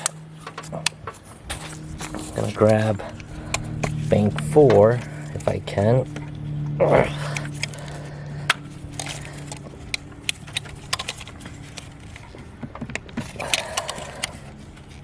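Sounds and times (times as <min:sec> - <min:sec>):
plastic scraping rub: 0:00.0 - 0:15.0
plastic clicks and knocks: 0:10.3 - 0:14.3.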